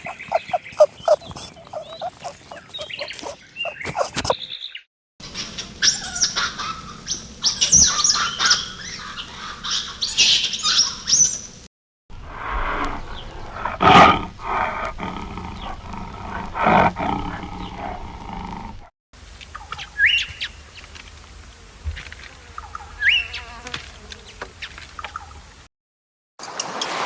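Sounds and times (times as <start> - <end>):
monkey squeaking and chirping: 0.0 - 4.4
tiger growling and roaring: 0.0 - 4.4, 12.3 - 18.9.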